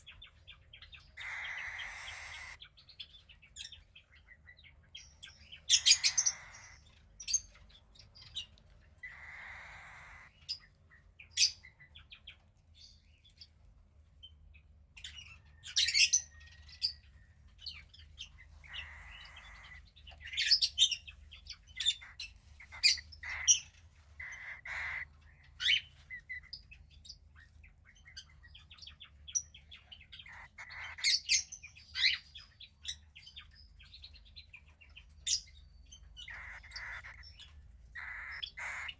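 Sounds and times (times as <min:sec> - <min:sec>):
bird chick raspy hissing calls: 0:01.2 - 0:02.6, 0:05.8 - 0:06.8, 0:09.1 - 0:10.3, 0:18.7 - 0:19.8, 0:22.0 - 0:23.6, 0:24.2 - 0:25.1, 0:36.3 - 0:37.2, 0:38.0 - 0:38.9.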